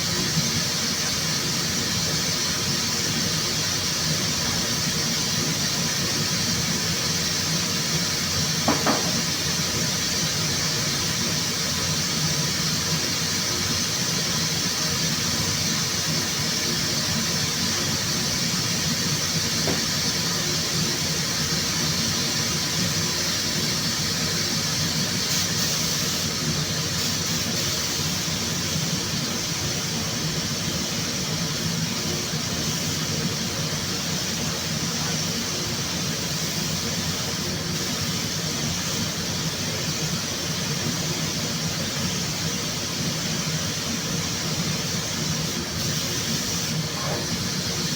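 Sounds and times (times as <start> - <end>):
air hissing: 7.0 - 29.3, 43.3 - 47.9.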